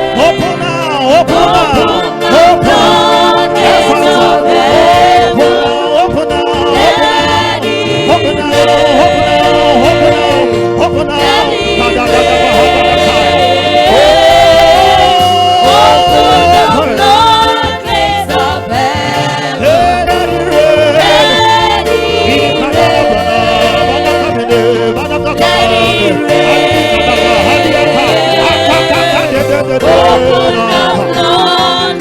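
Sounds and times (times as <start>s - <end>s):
people singing gospel: 0.0s - 32.0s
sustained held chords: 0.0s - 32.0s.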